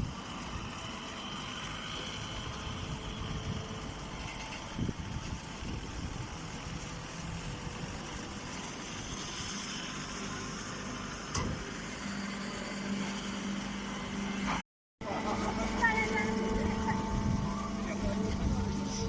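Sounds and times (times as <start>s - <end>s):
hay baler machine drone: 0.0s - 19.0s.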